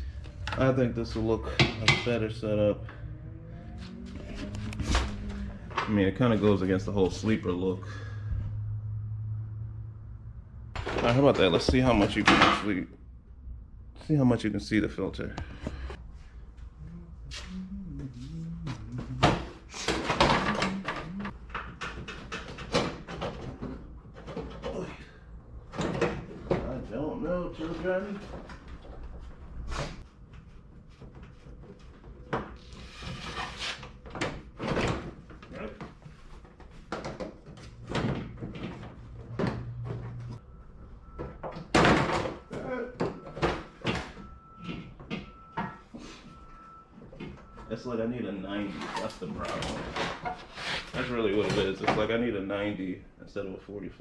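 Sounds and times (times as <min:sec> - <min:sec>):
car parts clattering and scraping: 0:00.0 - 0:08.7, 0:10.7 - 0:13.1, 0:14.6 - 0:16.8, 0:18.7 - 0:53.5
low steady hum: 0:00.0 - 0:19.6
low voice humming a tune: 0:16.8 - 0:19.6, 0:20.4 - 0:21.3.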